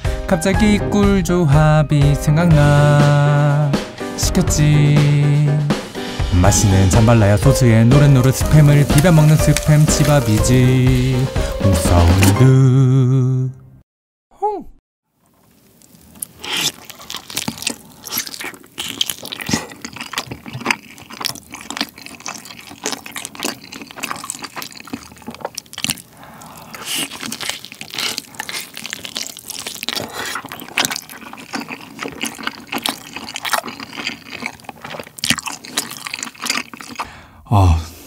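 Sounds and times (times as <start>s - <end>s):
chewing and tearing meat: 8.0s - 12.4s, 15.2s - 37.1s.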